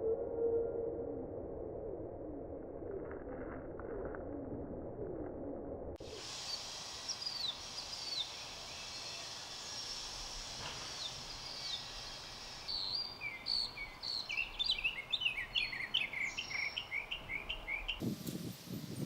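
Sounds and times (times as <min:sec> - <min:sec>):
faint steady high hiss: 0:06.0 - 0:16.6, 0:17.2 - 0:19.0
birds chirping: 0:06.1 - 0:19.0.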